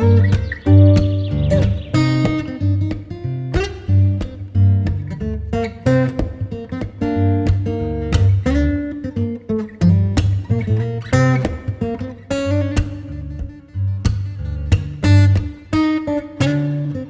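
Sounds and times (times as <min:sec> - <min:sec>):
steady bass: 0:00.0 - 0:05.5
acoustic guitar playing: 0:00.0 - 0:17.0.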